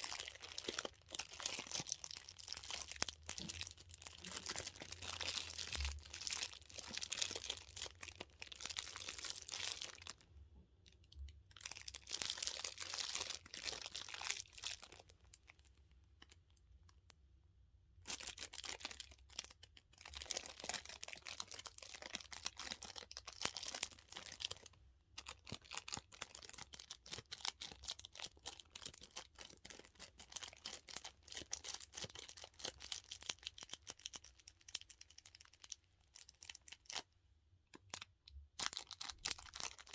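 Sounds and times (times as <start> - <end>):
squishy toy crinkling when squeezed: 37.8 - 39.9.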